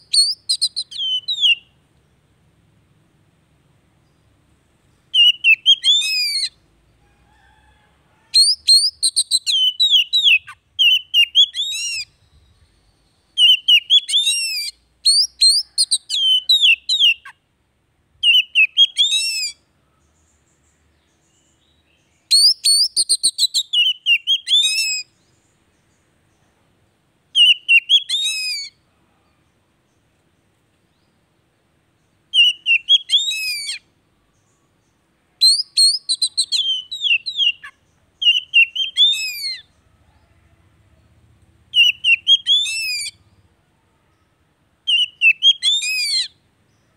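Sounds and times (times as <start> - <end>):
bird singing whistled notes: 0.0 - 1.8, 5.1 - 6.6, 8.4 - 17.4, 18.2 - 26.0, 27.3 - 28.8, 32.3 - 39.8, 41.7 - 43.4, 44.9 - 46.9.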